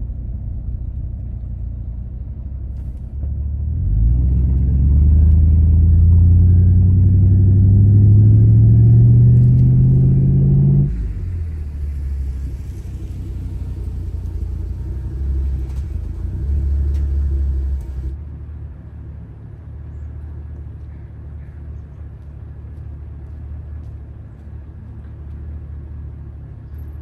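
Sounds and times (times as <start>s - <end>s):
truck engine accelerating: 0.0s - 18.2s.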